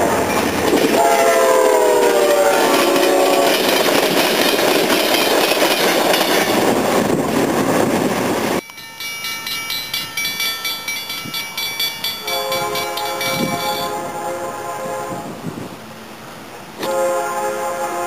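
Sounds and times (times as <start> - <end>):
train wheels rumbling on rail: 0.0 - 18.0
locomotive air horn chord: 1.0 - 3.7, 12.2 - 15.5, 16.8 - 18.0
crossing bell ringing: 2.7 - 6.7, 8.6 - 14.1.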